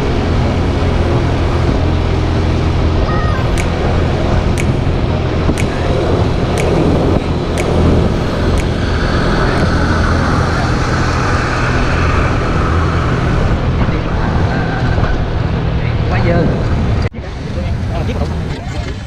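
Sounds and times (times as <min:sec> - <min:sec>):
moped engine running: 0:00.0 - 0:13.8
road and wind noise: 0:00.0 - 0:19.0.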